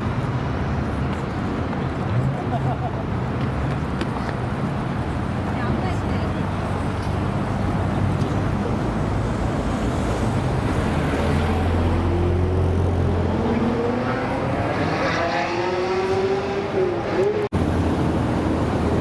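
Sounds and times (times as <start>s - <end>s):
car engine rumbling and accelerating: 6.1s - 19.0s.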